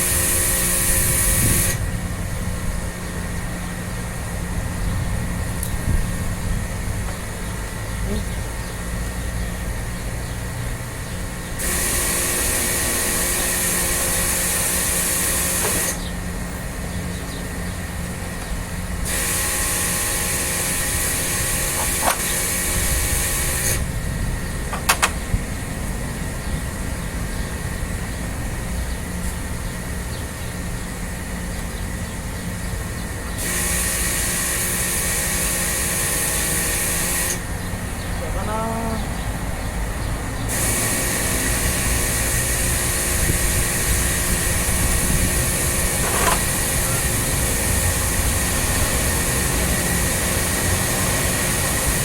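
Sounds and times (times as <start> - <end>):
pressure washer spraying: 0.0 - 1.8, 11.6 - 16.0, 19.0 - 23.8, 33.4 - 37.4, 40.5 - 52.0
motor whine: 0.0 - 52.0.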